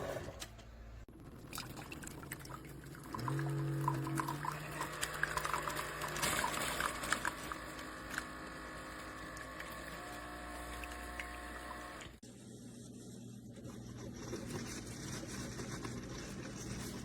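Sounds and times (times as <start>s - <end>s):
coffee trickling into cup: 1.4s - 12.0s.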